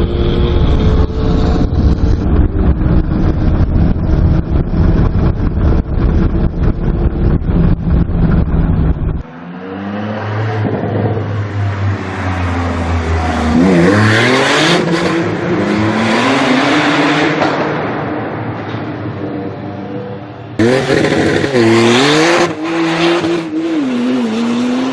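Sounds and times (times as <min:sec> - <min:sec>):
loud pulsing rumble: 0:00.0 - 0:09.3.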